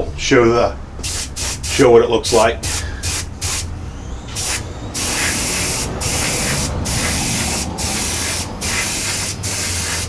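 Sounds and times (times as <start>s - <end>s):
airbrush spraying paint: 1.0s - 3.7s, 4.3s - 10.0s.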